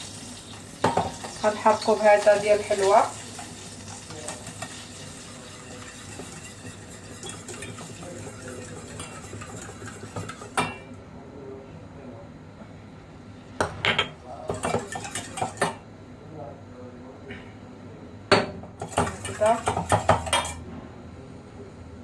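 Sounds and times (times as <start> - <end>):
butter sizzling in a pot: 0.0 - 10.8, 18.8 - 20.5
spoon stirring: 0.4 - 10.9, 14.5 - 15.8, 18.8 - 20.6
spoon knocking against pot: 18.3 - 20.6.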